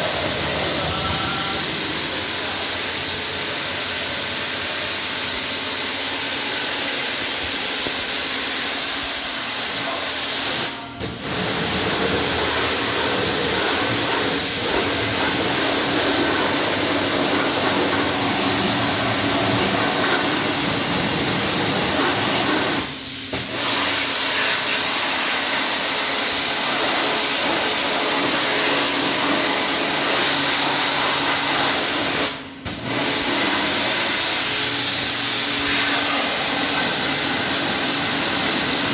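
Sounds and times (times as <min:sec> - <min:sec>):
pressure washer jet hissing: 0:00.0 - 0:38.9
pump humming: 0:32.7 - 0:38.9.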